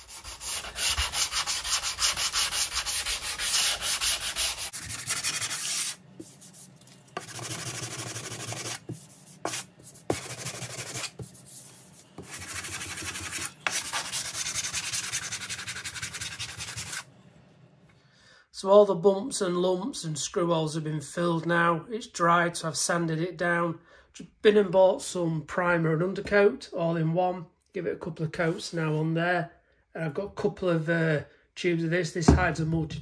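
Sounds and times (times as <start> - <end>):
sanding block rubbing: 0.0 - 6.6, 7.2 - 17.1.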